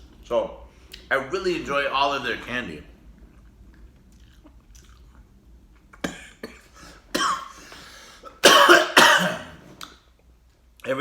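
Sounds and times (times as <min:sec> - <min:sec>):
man coughing: 0:06.0 - 0:07.6, 0:08.3 - 0:09.6.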